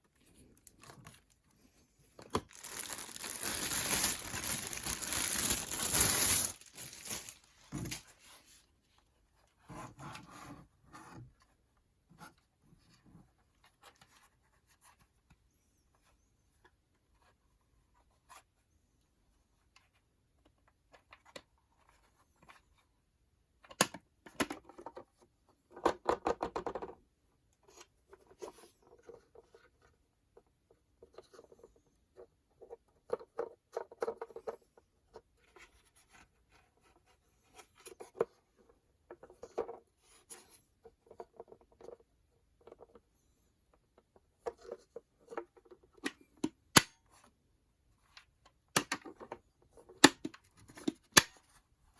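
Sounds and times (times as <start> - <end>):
scratching and rustling: 2.4 - 8.5.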